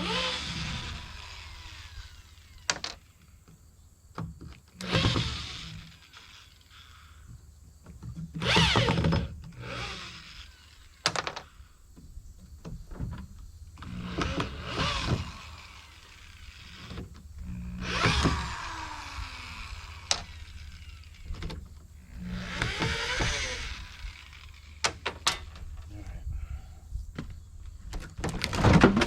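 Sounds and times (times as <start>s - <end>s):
squealing sliding-pitch tool noise: 13.8s - 24.8s.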